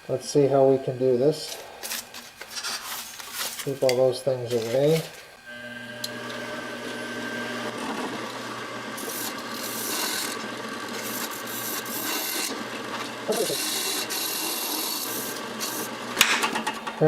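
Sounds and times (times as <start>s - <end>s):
turning tool scraping wood: 1.4s - 17.0s
wood lathe motor hum: 3.2s - 17.0s.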